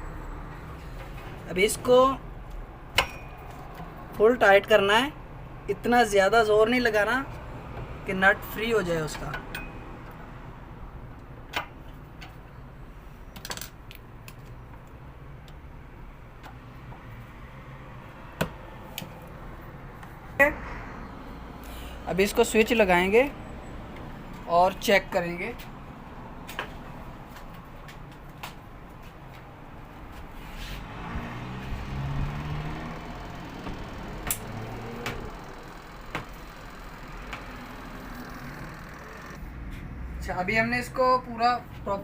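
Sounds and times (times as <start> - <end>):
spin dryer low hum: 32.2 - 39.4.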